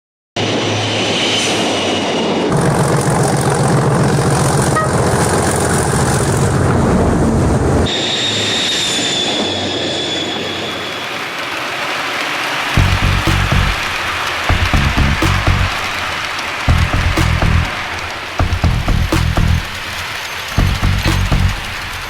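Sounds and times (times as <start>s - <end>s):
train running on rails: 0.4s - 22.0s
wheel squeal whine: 0.7s - 22.0s.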